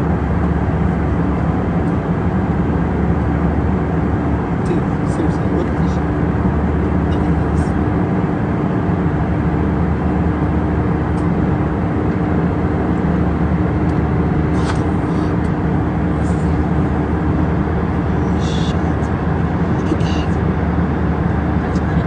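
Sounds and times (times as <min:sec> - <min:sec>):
moving vehicle rumble: 0:00.0 - 0:22.0.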